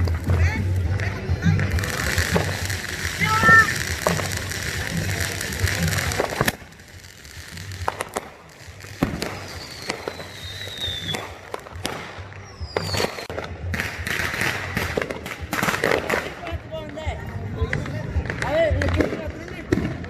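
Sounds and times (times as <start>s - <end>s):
firework pops and cracks: 0.0s - 20.0s
firework bang: 1.8s - 6.8s, 9.0s - 16.4s
falling firework whistle: 9.0s - 11.4s, 12.3s - 13.3s.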